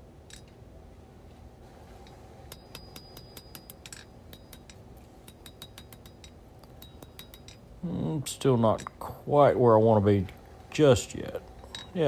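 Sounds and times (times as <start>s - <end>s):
hammer striking steel on anvil: 2.5s - 7.6s.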